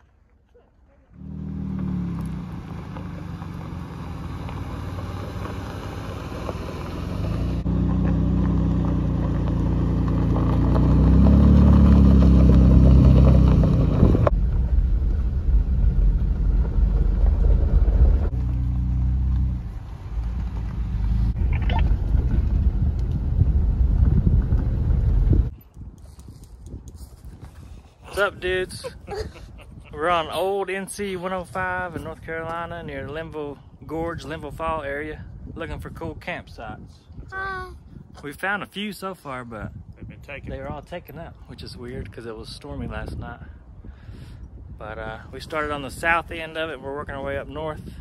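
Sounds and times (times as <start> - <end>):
pickup truck engine accelerating: 1.2 - 25.5.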